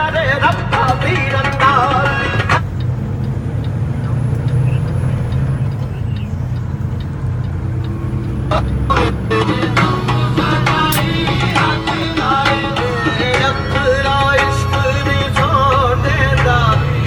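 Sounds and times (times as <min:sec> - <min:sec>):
song playing: 0:00.0 - 0:02.7, 0:08.0 - 0:17.0
faint regular ticking: 0:00.0 - 0:16.8
road noise: 0:00.0 - 0:17.0
truck engine drone: 0:00.0 - 0:17.0.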